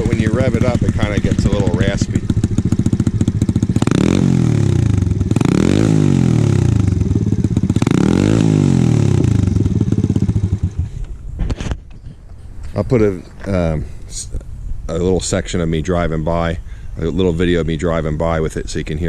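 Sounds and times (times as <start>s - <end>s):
motorbike engine idling and revving: 0.0s - 11.3s.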